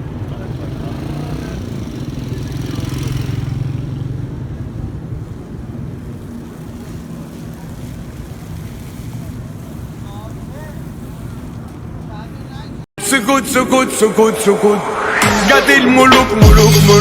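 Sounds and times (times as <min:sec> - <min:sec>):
vehicle engine revving: 0:00.0 - 0:05.0, 0:13.5 - 0:17.0.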